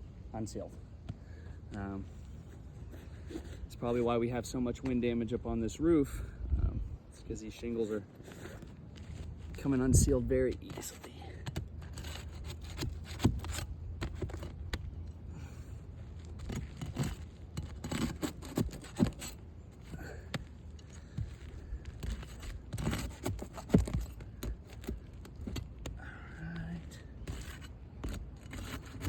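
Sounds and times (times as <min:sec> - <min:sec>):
shingles scraping and rubbing: 0:02.0 - 0:04.2, 0:07.5 - 0:26.1, 0:26.8 - 0:29.0
sharp clicks and knocks: 0:20.3 - 0:26.0.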